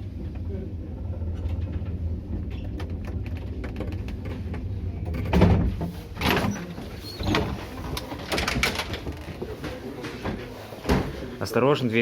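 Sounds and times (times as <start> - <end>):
lift low hum: 0.0 - 6.2.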